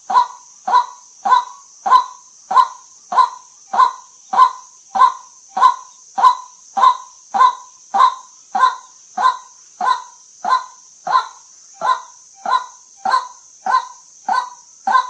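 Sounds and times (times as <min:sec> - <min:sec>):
waterhen calling: 0:00.0 - 0:15.0.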